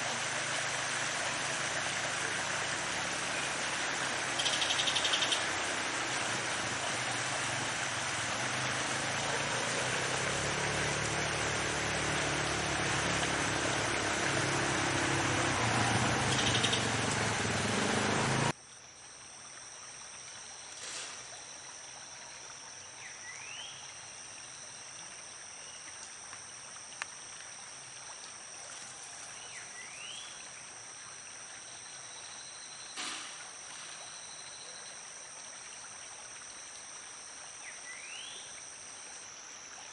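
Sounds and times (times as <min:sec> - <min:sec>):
high insect trilling: 0:04.3 - 0:05.9.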